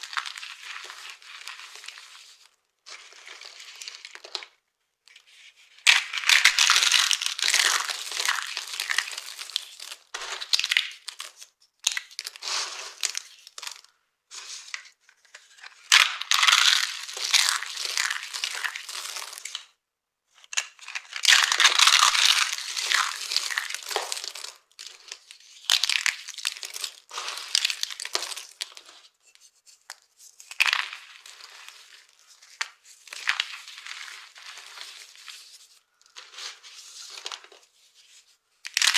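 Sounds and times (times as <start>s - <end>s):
dry soap crunching: 0.0s - 4.5s, 5.9s - 13.9s, 15.4s - 19.7s, 20.6s - 29.1s, 29.9s - 37.6s.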